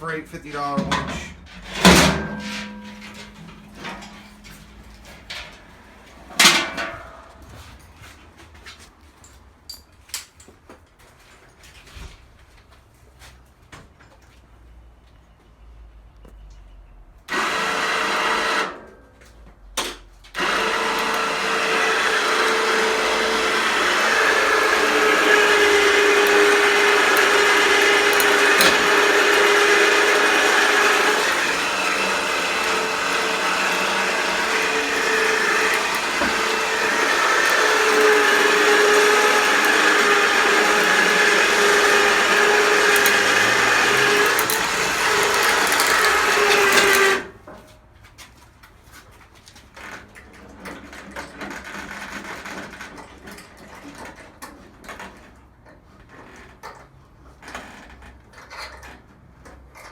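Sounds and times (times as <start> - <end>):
electric winch motor whine: 1.7 - 5.8, 17.3 - 18.9, 20.4 - 47.3.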